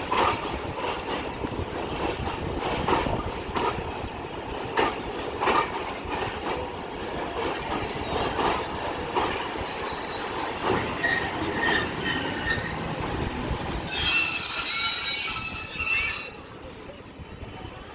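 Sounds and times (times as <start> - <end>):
train wheels clattering on rails: 0.0 - 17.9
train brake squeal: 8.0 - 17.2.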